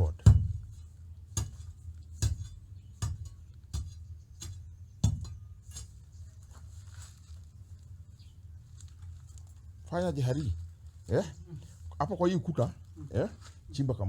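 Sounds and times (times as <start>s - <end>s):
sharp knocks: 0.0s - 0.7s.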